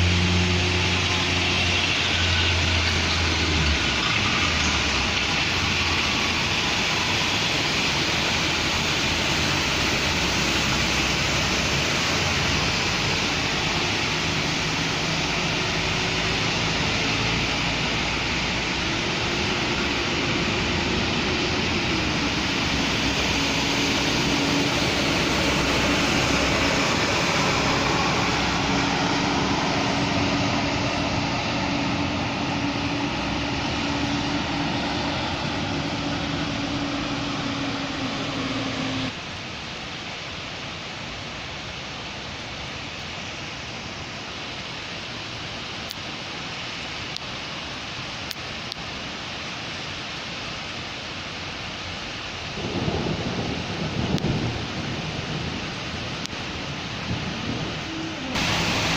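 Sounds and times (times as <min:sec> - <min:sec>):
passing vehicles engine hum: 0:00.0 - 0:39.2
rain on a street: 0:00.0 - 0:58.9.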